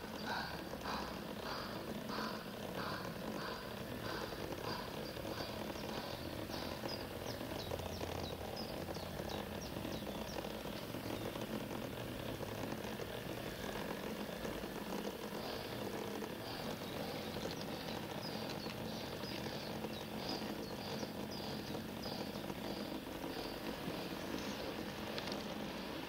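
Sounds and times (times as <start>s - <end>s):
bird chirping: 0.0s - 11.4s, 16.4s - 25.4s
model train running on track: 0.0s - 26.0s.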